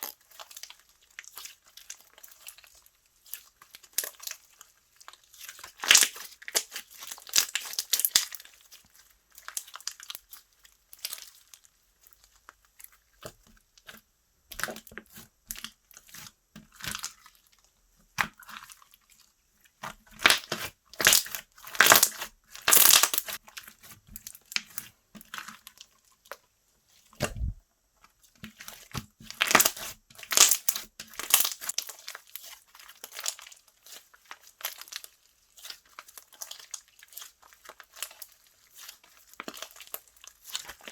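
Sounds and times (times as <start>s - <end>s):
slime crackling and popping: 0.1s - 11.6s, 19.8s - 26.4s, 28.5s - 40.9s.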